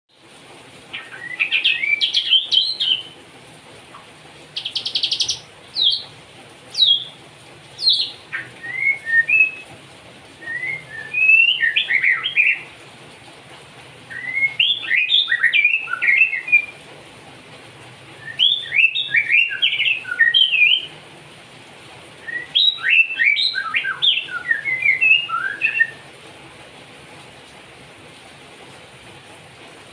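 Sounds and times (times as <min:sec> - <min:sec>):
bird singing whistled notes: 0:01.0 - 0:03.2, 0:04.6 - 0:06.1, 0:06.7 - 0:07.2, 0:07.8 - 0:09.6, 0:10.4 - 0:12.7, 0:14.1 - 0:16.8, 0:18.2 - 0:20.9, 0:22.2 - 0:26.0.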